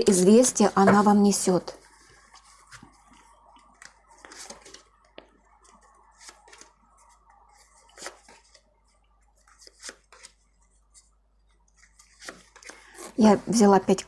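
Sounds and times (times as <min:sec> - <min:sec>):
cards sliding and tapping: 0:09.5 - 0:10.4, 0:11.8 - 0:12.8.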